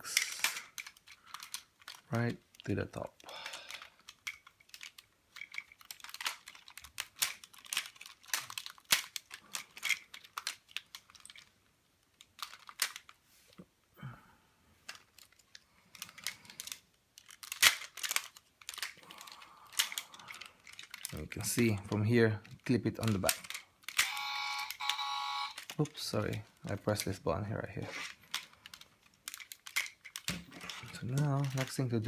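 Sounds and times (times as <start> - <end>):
plastic toy parts clicking: 0.0 - 13.2, 14.8 - 27.2, 27.8 - 32.0.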